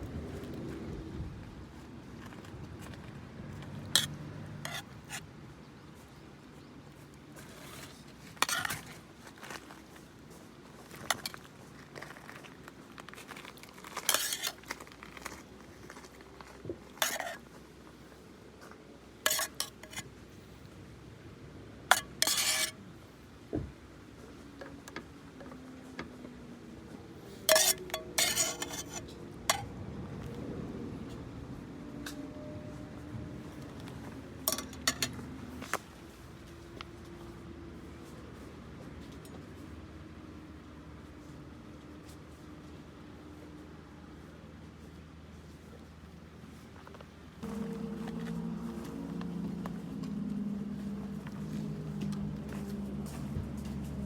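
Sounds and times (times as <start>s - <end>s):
cutlery and dishes clinking: 17.0s - 17.4s, 19.3s - 20.0s, 21.9s - 22.8s, 27.3s - 29.7s, 34.5s - 35.2s.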